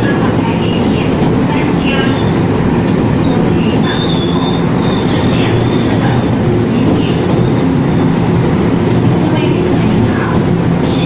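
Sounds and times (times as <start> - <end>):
train wheels rumbling on track: 0.0 - 11.0
high-pitched wheel squeal: 3.8 - 5.9.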